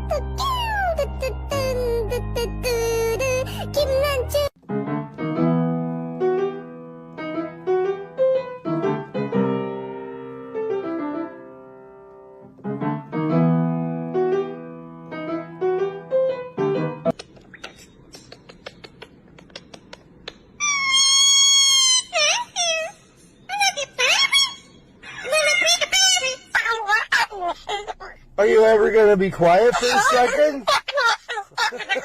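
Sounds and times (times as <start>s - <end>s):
piano melody: 0.0s - 17.2s.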